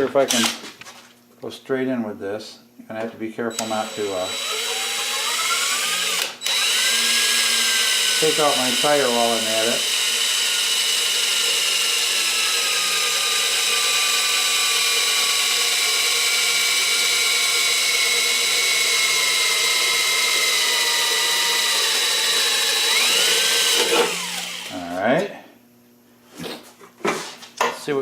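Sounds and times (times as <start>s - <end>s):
electric drill boring: 3.5s - 24.8s.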